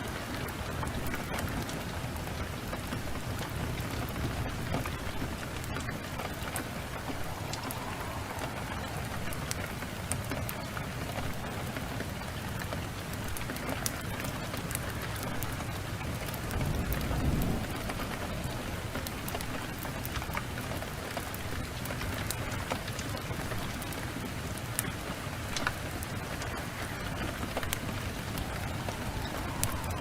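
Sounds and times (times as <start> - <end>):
heavy rain: 0.0 - 30.0
wood fire crackling: 0.0 - 30.0
thunder rolling: 3.1 - 11.9, 16.1 - 20.4, 26.4 - 30.0.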